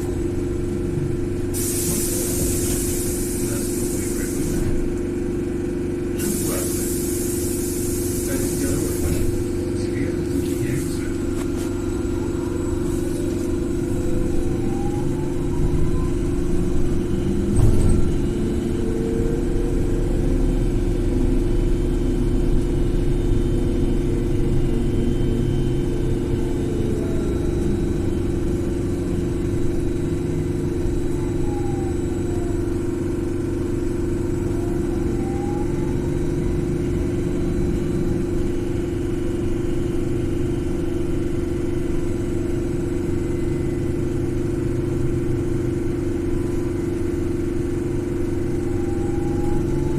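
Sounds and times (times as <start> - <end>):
road rumble: 0.0 - 49.9
electric motor whine: 11.2 - 38.2.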